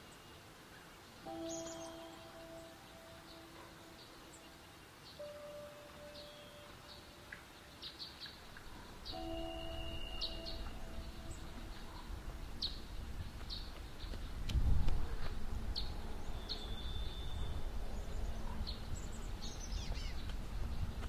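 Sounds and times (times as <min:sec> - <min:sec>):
small birds chirping: 0:00.0 - 0:21.0
whistled bird note: 0:05.2 - 0:07.1, 0:09.1 - 0:12.1, 0:16.3 - 0:17.6
steady low rumble: 0:08.4 - 0:21.0.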